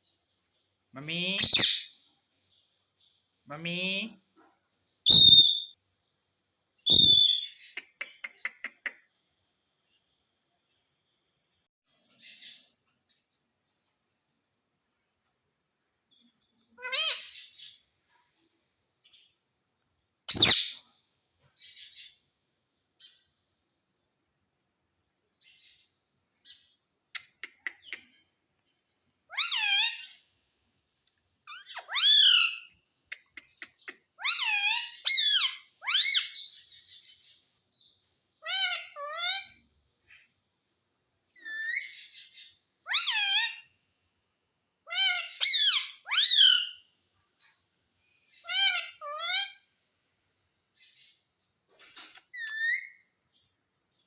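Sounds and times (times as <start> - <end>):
parrot chirping: 1.0 - 2.0, 5.1 - 5.8, 6.9 - 8.9, 16.8 - 17.7, 20.3 - 20.9, 29.3 - 30.2, 31.5 - 37.2, 38.4 - 39.6, 41.4 - 43.7, 44.8 - 46.8, 48.3 - 49.6, 51.8 - 53.0.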